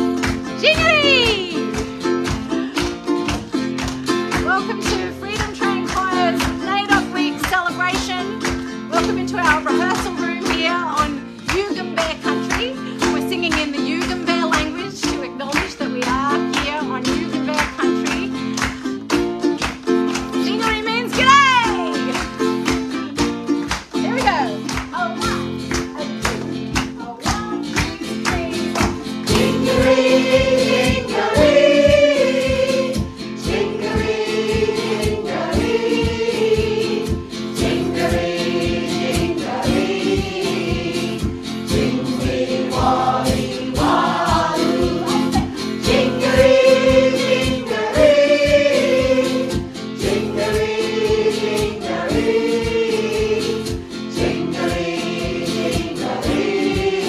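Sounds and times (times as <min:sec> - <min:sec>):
rhythmic instrumental accompaniment: 0:00.0 - 0:57.0
choir singing: 0:28.6 - 0:57.0.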